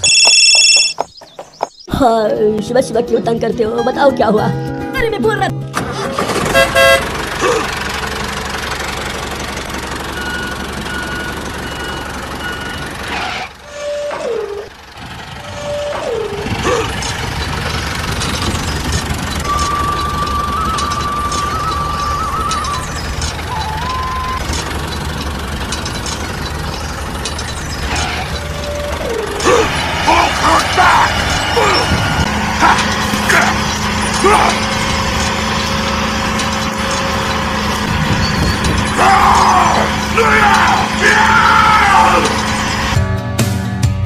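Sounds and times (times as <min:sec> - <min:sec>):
short beeps: 0:00.0 - 0:01.0
tractor engine running: 0:00.0 - 0:03.6, 0:04.5 - 0:44.0.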